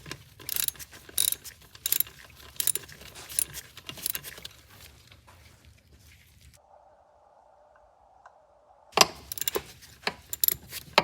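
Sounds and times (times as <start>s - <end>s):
metallic clinks: 0.5s - 4.3s, 9.1s - 10.6s
ratchet wrench clicking: 0.5s - 4.3s, 9.0s - 10.6s.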